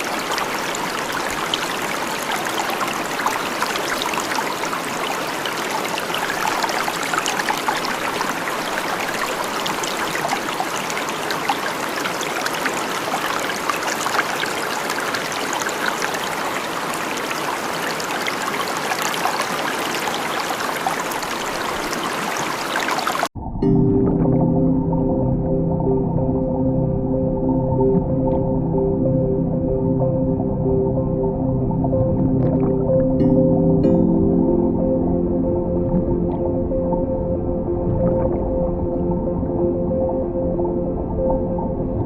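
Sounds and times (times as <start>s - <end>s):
water trickling and splashing: 0.0s - 23.4s.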